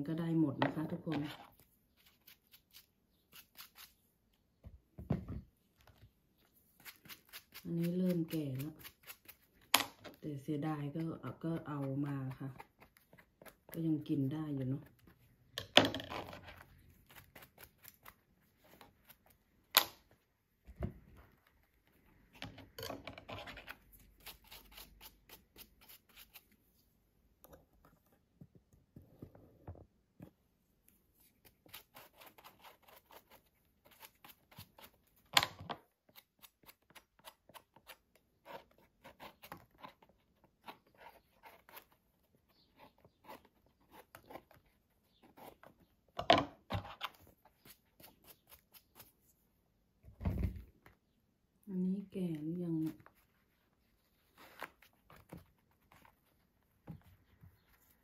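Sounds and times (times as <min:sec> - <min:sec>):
hands scraping and rubbing mushrooms: 0:01.0 - 0:04.1, 0:05.9 - 0:13.8, 0:46.6 - 0:49.5.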